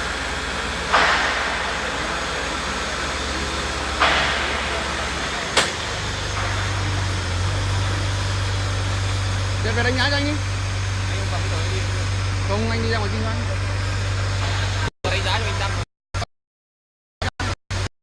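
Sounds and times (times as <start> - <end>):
vehicle engine idling: 0.0 - 15.6
sharp click: 5.6 - 6.0.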